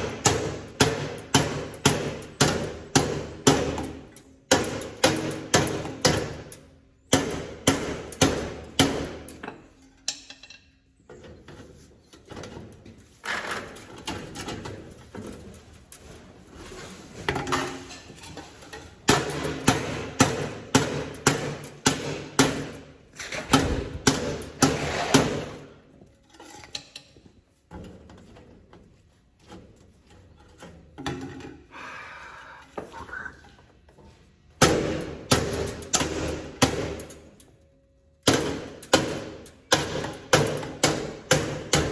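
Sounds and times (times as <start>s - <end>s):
metal clatter and scraping: 9.3s - 20.2s, 22.9s - 31.7s.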